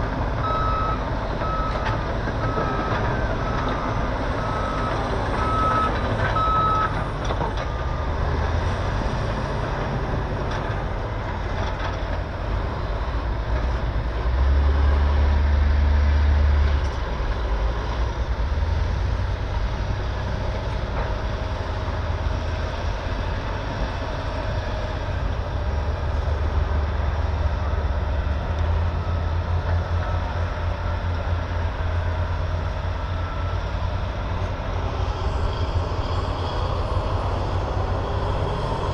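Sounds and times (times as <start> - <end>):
heavy diesel engines rumbling: 0.0 - 38.9
backup alarm beeping: 0.4 - 7.0.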